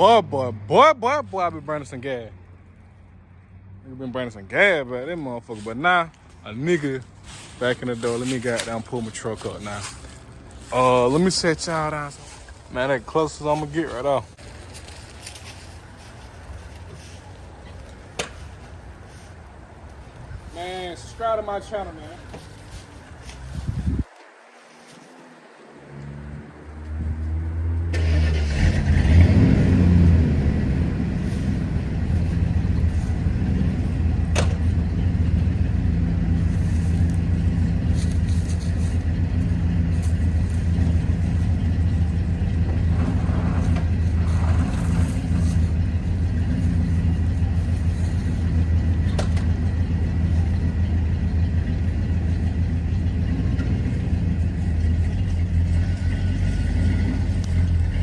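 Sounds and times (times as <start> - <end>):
pickup truck engine starting and running: 25.9 - 58.0.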